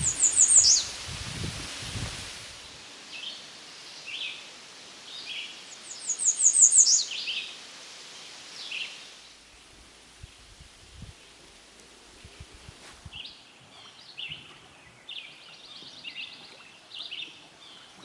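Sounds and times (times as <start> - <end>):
low rustle: 0.0 - 2.8, 9.3 - 13.3.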